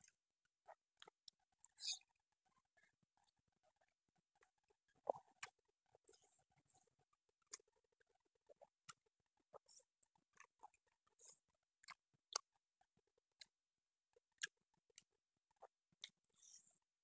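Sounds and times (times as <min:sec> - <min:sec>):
person chewing with wet smacks: 0:04.5 - 0:06.3, 0:08.4 - 0:12.5, 0:14.3 - 0:16.6.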